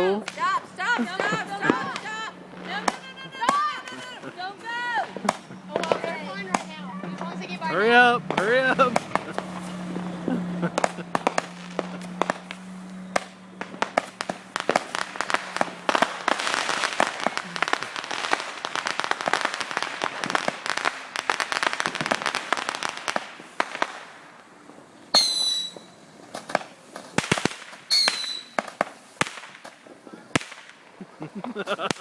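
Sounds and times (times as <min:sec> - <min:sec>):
fireworks crackling pops: 0:00.0 - 0:32.0
firework whistles falling in pitch: 0:25.1 - 0:26.0, 0:27.9 - 0:28.8.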